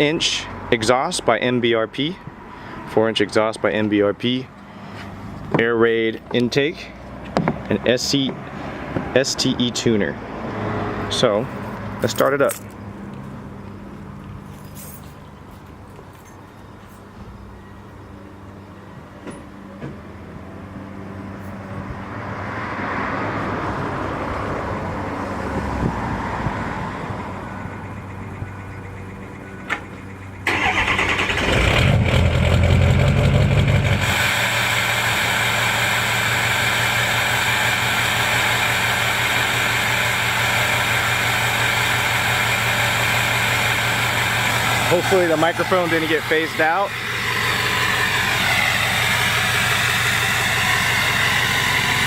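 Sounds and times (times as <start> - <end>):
diesel engine starting and idling: 27.2 - 52.0.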